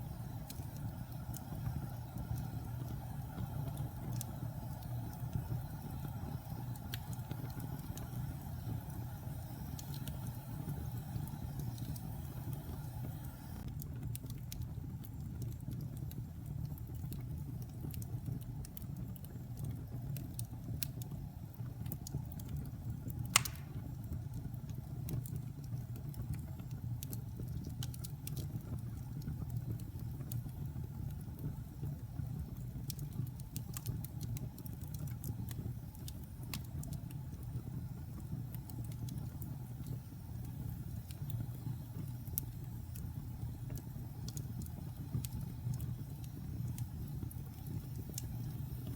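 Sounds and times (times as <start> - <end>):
wood fire crackling: 0.0 - 48.9
sharp pop of fire: 23.2 - 24.0.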